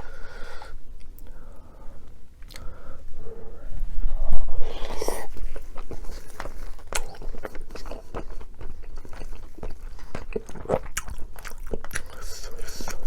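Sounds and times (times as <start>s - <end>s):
chewing and biting food: 4.7s - 13.0s.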